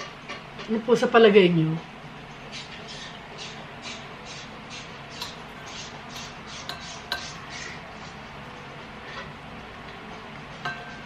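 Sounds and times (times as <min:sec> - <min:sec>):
utensil clinking on dishware: 0:05.2 - 0:05.4, 0:06.1 - 0:07.4, 0:10.6 - 0:11.0.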